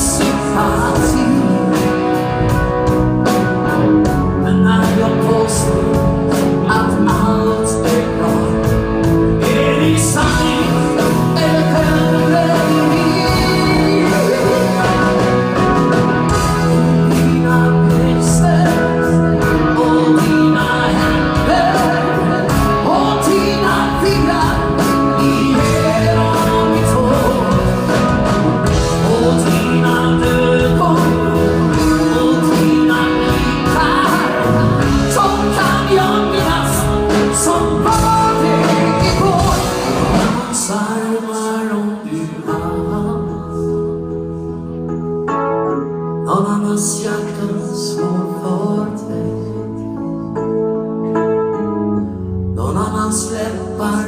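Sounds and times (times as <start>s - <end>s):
bass and drums: 0.0s - 40.8s
person singing: 0.0s - 44.8s, 46.0s - 50.5s, 52.4s - 54.0s
band playing pop-rock song: 0.0s - 54.0s
electric guitar: 0.0s - 54.0s.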